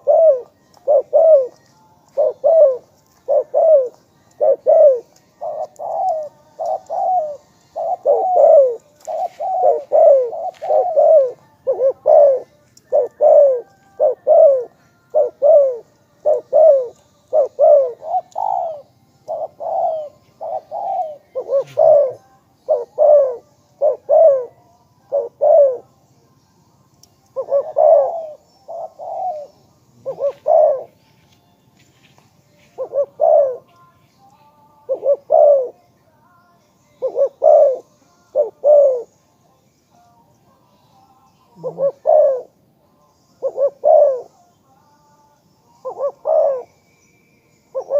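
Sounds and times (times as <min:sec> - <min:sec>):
dove cooing: 0:00.0 - 0:25.9, 0:27.3 - 0:31.0, 0:32.7 - 0:33.7, 0:34.8 - 0:35.8, 0:37.0 - 0:39.2, 0:41.5 - 0:42.6, 0:43.4 - 0:44.4, 0:45.8 - 0:46.8, 0:47.7 - 0:47.9.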